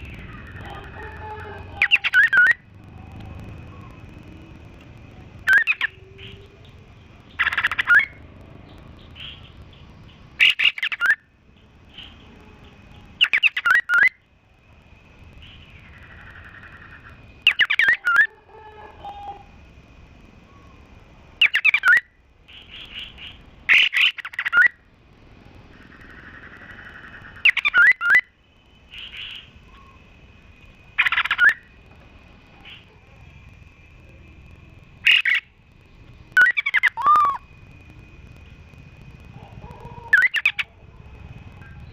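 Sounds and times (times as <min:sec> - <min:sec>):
soft bird trills: 0:00.0 - 0:02.7, 0:05.4 - 0:14.2, 0:25.8 - 0:30.1, 0:30.9 - 0:31.8
songbirds chattering: 0:00.0 - 0:14.2, 0:14.9 - 0:19.5, 0:20.4 - 0:24.8, 0:25.6 - 0:41.9
thin steady high whistle: 0:27.4 - 0:41.9.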